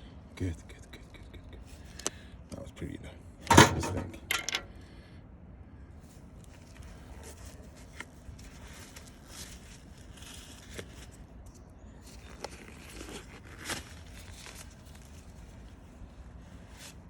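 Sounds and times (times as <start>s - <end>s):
rustling and light clicks: 6.4s - 15.7s.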